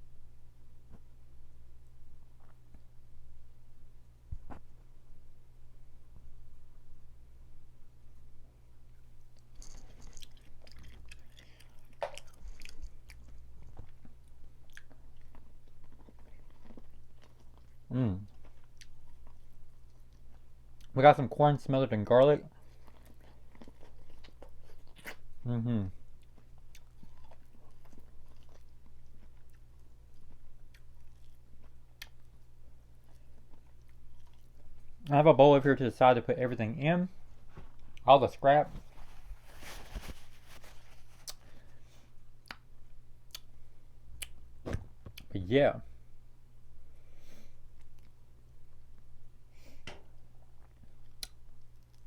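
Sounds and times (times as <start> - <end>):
steady low hum: 0.0 - 52.0
chewing and crunching: 8.9 - 21.0, 22.1 - 35.1, 38.8 - 41.8, 50.2 - 52.0.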